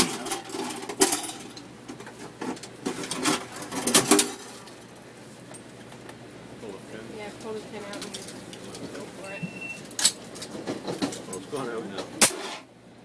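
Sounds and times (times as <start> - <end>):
metallic clanks and rattles: 0.0 - 5.0.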